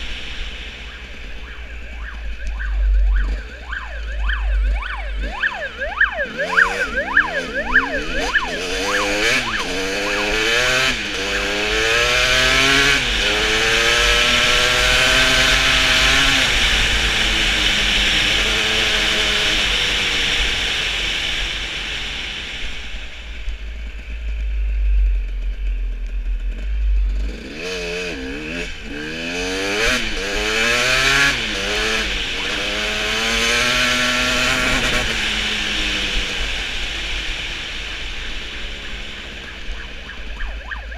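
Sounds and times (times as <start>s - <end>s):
steady low rumble: 0.0s - 8.9s, 22.6s - 27.4s
motorcycle engines revving: 0.0s - 40.9s
police siren yelping: 0.8s - 11.8s, 39.1s - 40.9s.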